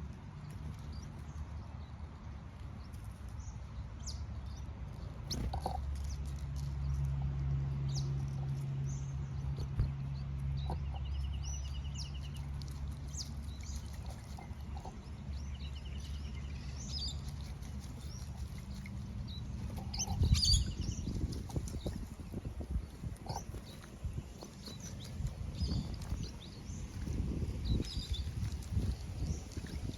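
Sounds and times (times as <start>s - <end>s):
birds chirping: 7.8s - 29.9s
buzzy rattling bird trills: 13.0s - 22.0s.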